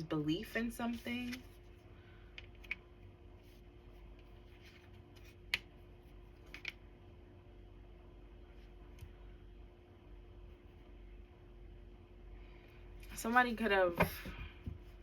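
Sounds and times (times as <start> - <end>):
faint steady hum: 0.0 - 15.0
cards clicking and rustling: 6.4 - 6.8.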